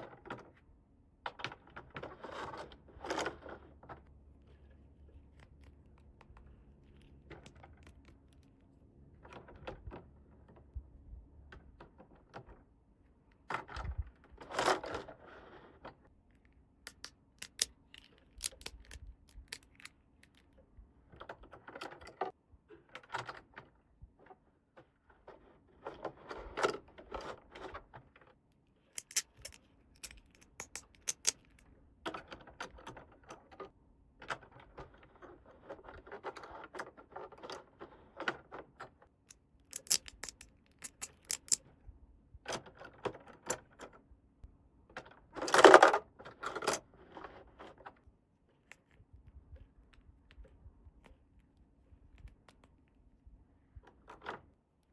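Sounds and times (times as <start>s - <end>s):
plastic toy pieces clicking: 16.9s - 20.5s, 28.9s - 31.6s, 39.6s - 41.6s.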